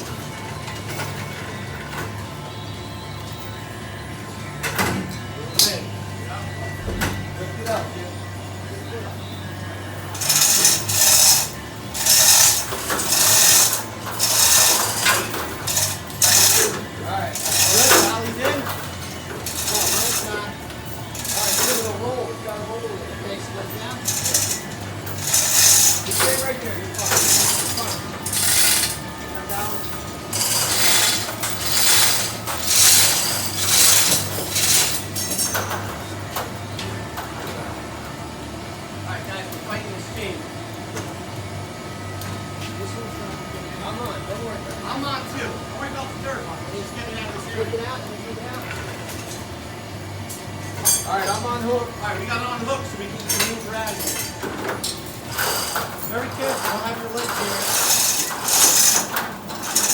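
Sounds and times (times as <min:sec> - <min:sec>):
hand hoist ratcheting: 0:10.1 - 0:22.0, 0:24.0 - 0:35.9, 0:53.3 - 0:59.9
scraping strokes on floor: 0:24.1 - 0:29.0, 0:30.4 - 0:35.1.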